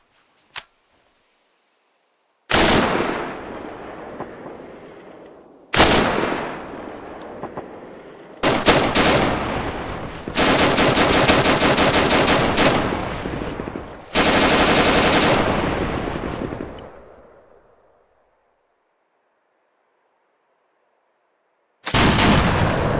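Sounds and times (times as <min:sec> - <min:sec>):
echoing gunshots: 0:02.5 - 0:17.9, 0:21.8 - 0:22.9
rapid automatic gunfire: 0:08.4 - 0:13.5, 0:14.1 - 0:16.7, 0:21.9 - 0:22.8.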